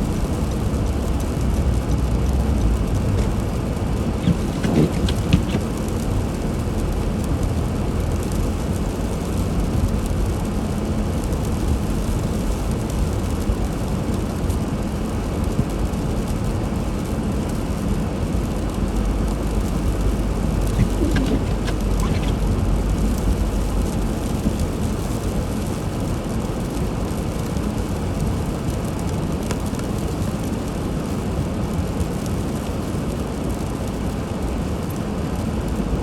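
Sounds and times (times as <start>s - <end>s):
engine and tyres rumbling: 0.0s - 27.2s.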